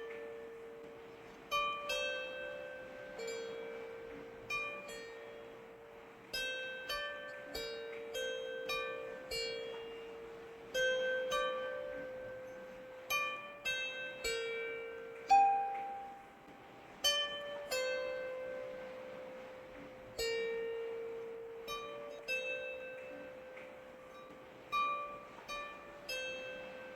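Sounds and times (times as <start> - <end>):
faint rain hiss: 0.0 - 26.9
plucked string music: 6.3 - 26.9.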